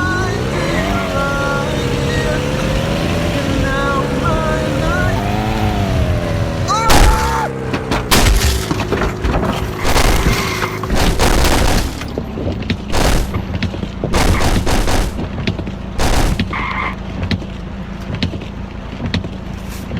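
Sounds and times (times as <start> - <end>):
car crash bangs and crunches: 6.8 - 19.3.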